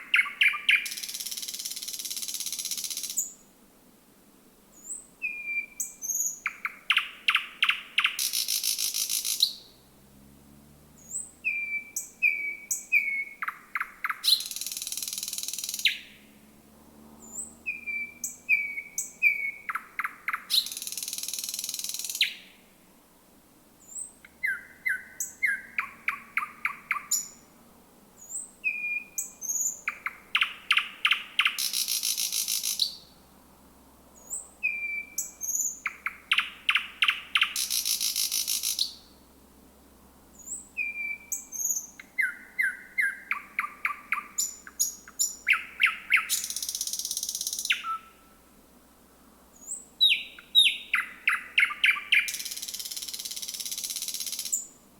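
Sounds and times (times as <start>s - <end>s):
bird buzzing rattle: 0.9s - 3.2s, 8.2s - 9.5s, 14.3s - 15.9s, 31.6s - 32.8s, 52.3s - 54.6s
bird whistled notes: 4.8s - 9.6s, 11.1s - 16.0s, 17.3s - 22.4s, 28.3s - 33.0s, 34.6s - 39.0s, 40.5s - 48.3s, 49.6s - 54.7s.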